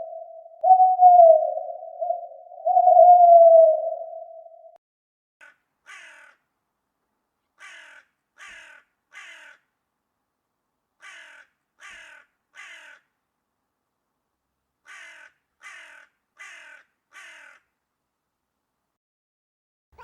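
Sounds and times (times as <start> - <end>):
crow cawing: 5.9 - 6.4, 7.6 - 9.7, 11.0 - 13.1, 14.8 - 17.7.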